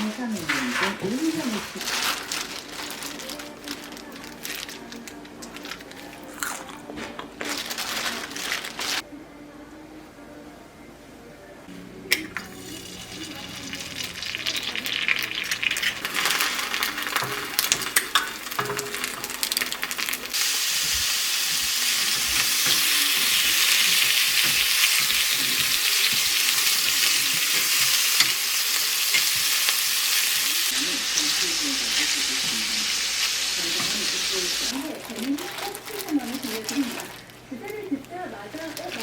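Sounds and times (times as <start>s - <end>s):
food sizzling in a frying pan: 0.0s - 4.8s, 12.2s - 37.3s.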